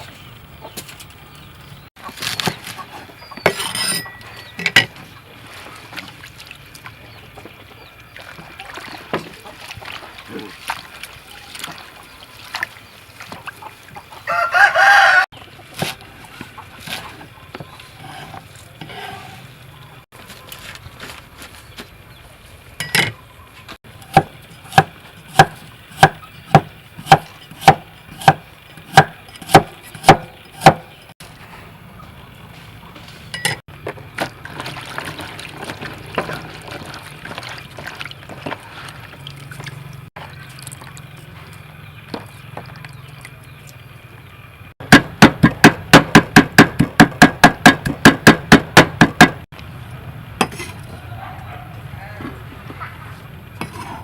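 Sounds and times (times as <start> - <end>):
sharp knocks: 44.8 - 49.4.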